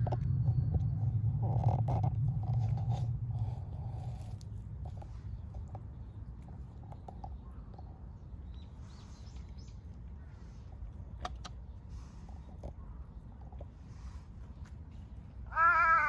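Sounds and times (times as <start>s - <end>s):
low rumble: 0.0s - 5.7s.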